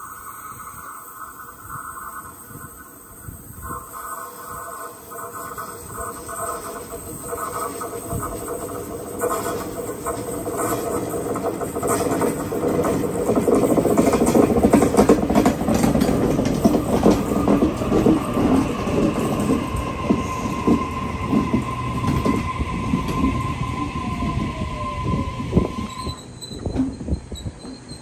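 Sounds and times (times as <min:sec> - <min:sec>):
falling whine of train: 0:00.0 - 0:28.0
train wheels clattering over rails: 0:05.1 - 0:24.3
high wheel squeal: 0:18.0 - 0:28.0.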